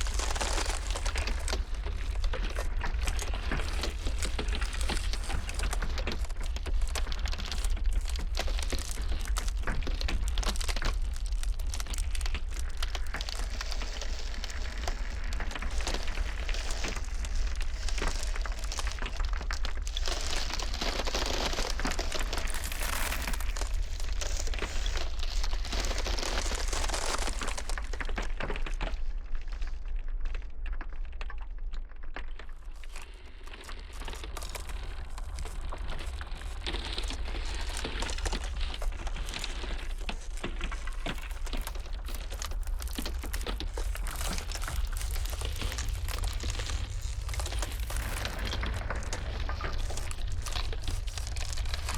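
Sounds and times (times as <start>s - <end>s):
low rumble of wind: 0.0s - 29.5s, 33.1s - 51.9s
ice crackling: 0.0s - 31.5s, 32.1s - 51.9s.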